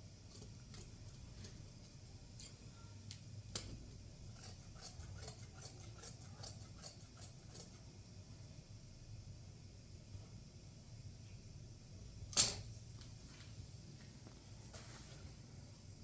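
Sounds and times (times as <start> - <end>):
low steady hum: 0.0 - 16.0
loud snap: 12.3 - 12.7.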